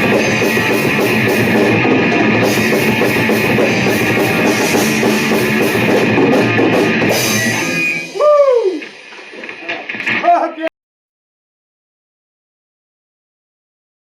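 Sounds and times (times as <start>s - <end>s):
heavy metal band playing: 0.0s - 10.7s.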